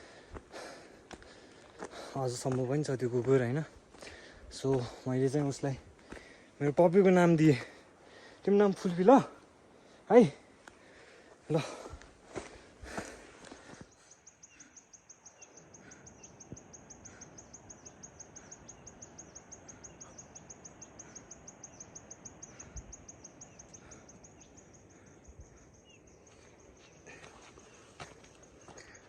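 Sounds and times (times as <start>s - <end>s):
faint bird chirps: 13.8s - 29.0s.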